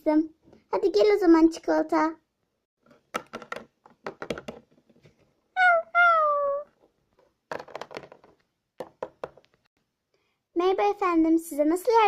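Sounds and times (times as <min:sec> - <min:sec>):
plastic toy figures tapping: 0:02.8 - 0:05.0, 0:07.5 - 0:09.6.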